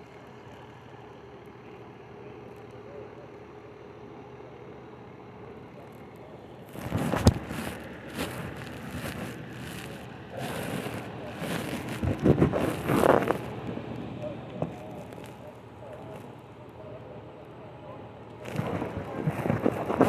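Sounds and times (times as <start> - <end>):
rustling and scraping: 6.7 - 13.8, 14.6 - 16.3, 18.4 - 20.0.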